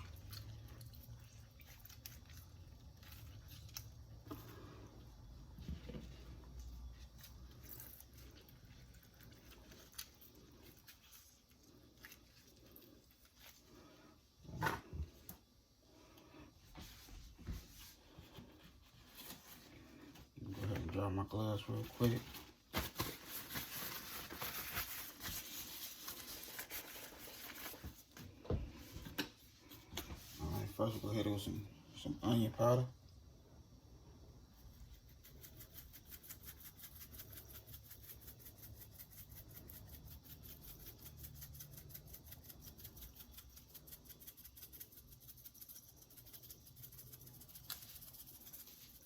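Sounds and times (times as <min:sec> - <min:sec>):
squishy food handling sounds: 0:00.0 - 0:31.1.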